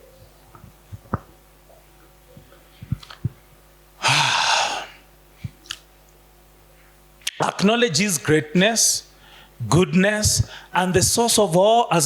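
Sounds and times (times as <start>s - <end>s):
breathy exhale: 4.0s - 5.0s.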